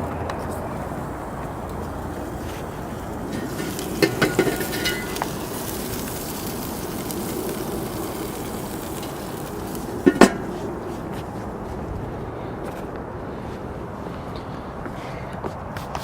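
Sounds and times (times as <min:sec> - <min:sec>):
tongs clinking on grill: 0:03.3 - 0:10.6.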